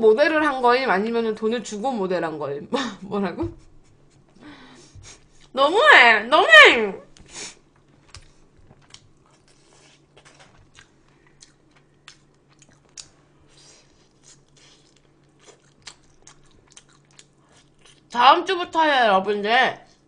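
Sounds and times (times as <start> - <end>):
low steady hum: 0.0 - 20.0
person chewing crunchy food: 7.9 - 18.1.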